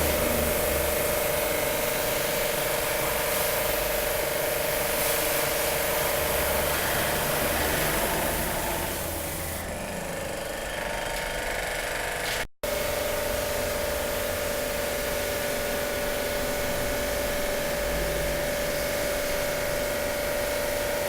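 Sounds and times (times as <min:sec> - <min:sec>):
broad spraying hiss: 0:00.0 - 0:09.6.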